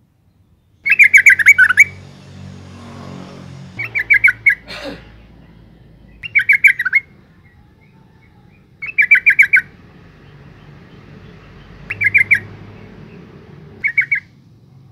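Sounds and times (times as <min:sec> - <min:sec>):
bird chattering calls: 0:00.8 - 0:02.0, 0:03.8 - 0:04.7, 0:05.5 - 0:14.4.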